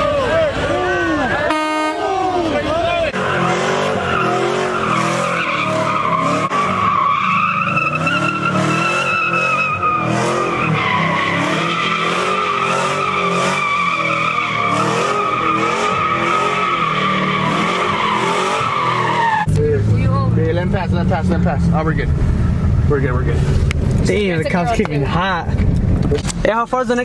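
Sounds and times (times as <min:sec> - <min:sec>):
tyres squealing: 0:00.0 - 0:19.5
car engine revving: 0:00.0 - 0:26.5.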